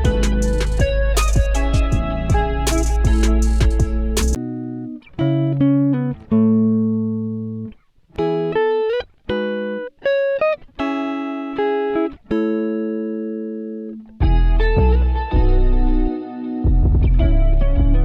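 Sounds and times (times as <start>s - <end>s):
deep bass: 0.0s - 4.4s, 14.2s - 18.0s
plucked guitar-like melody: 0.0s - 18.0s.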